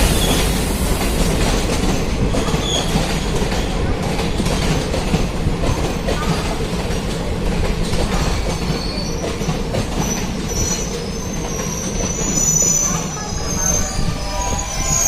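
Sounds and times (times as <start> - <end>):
train rumble and wheel clatter: 0.0 - 15.0
high wheel squeal: 10.0 - 15.0.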